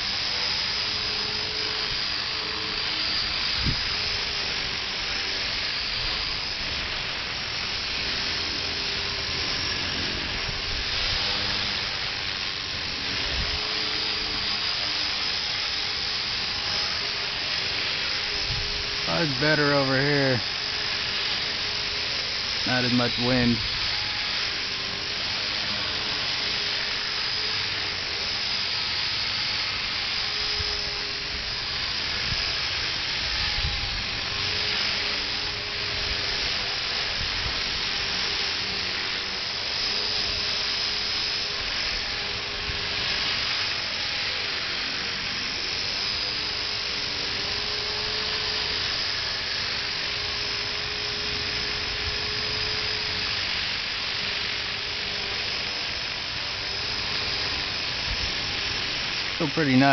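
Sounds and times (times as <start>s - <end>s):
rc helicopter rotor whine: 0.0s - 59.9s
wind rumble on microphone: 13.0s - 13.7s.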